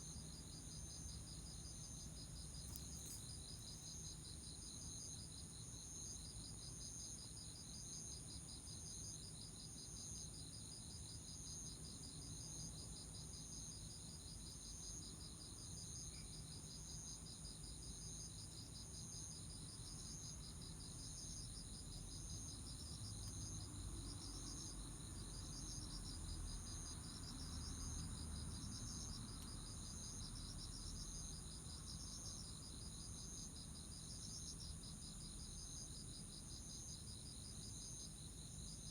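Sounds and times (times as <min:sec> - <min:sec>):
insect chirp pulsing: 0:00.0 - 0:38.9
insects trilling: 0:00.1 - 0:05.1.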